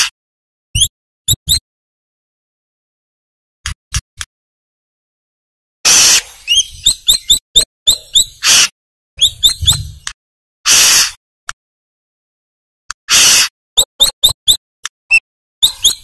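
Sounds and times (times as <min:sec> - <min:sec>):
bird chirping and rasping: 0:00.8 - 0:01.6, 0:05.9 - 0:10.1, 0:10.7 - 0:11.2, 0:13.0 - 0:16.0.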